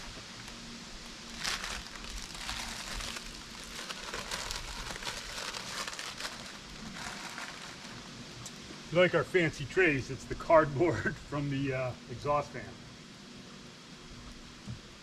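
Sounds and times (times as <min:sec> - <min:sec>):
food packaging crinkling: 0:01.2 - 0:08.1.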